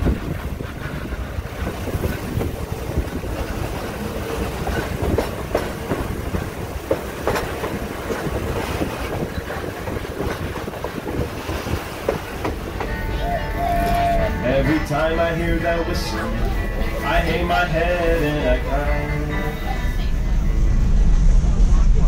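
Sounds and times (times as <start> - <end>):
clacks over rail joints: 0.0 - 13.2
train wheels rumbling on rail: 0.0 - 22.0.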